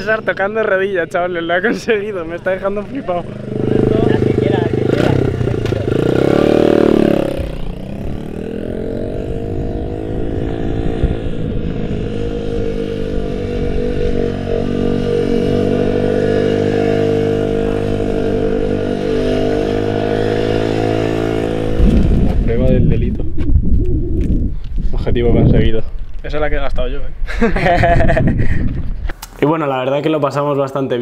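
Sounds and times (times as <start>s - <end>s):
dirt bike engine revving: 1.6s - 22.6s.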